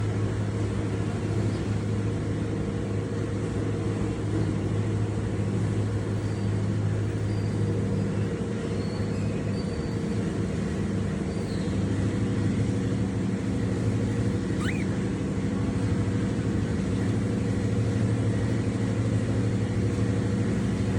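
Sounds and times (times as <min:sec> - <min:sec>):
low mechanical hum: 0:00.0 - 0:20.9
faint high chirps: 0:14.5 - 0:15.0.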